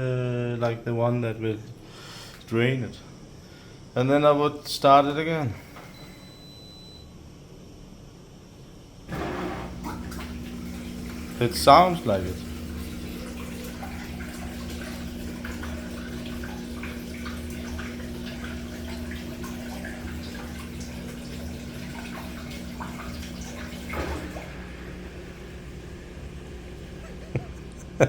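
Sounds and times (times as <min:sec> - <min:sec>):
drain pump humming: 0:09.1 - 0:28.0
water running and trickling: 0:09.1 - 0:28.0.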